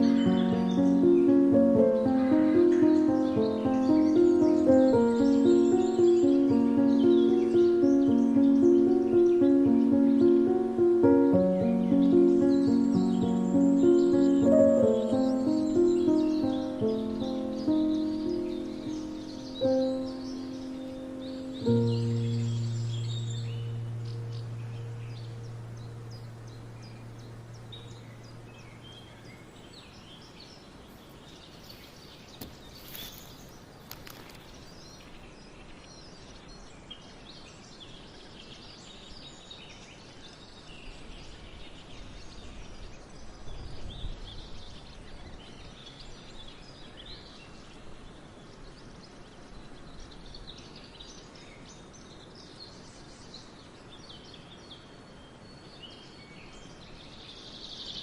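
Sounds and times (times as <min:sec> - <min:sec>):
low held musical note: 0:00.0 - 0:29.2
small birds chirping and singing: 0:00.0 - 0:58.0
steady background hiss: 0:00.0 - 0:58.0.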